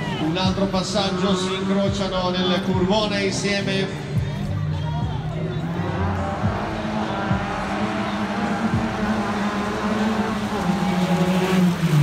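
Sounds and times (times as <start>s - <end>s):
race car engine passing by: 5.4s - 12.0s.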